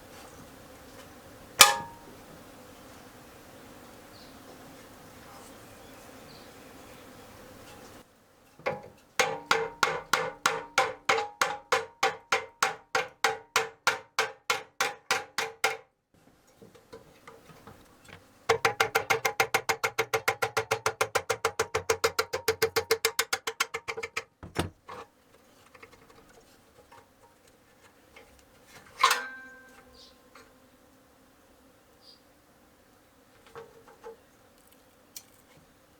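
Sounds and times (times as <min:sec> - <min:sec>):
sharp knock: 0:01.6 - 0:02.0.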